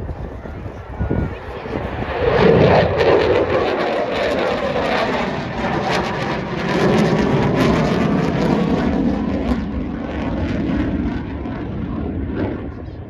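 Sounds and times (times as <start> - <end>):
fighter jet roar: 0.0 - 13.0.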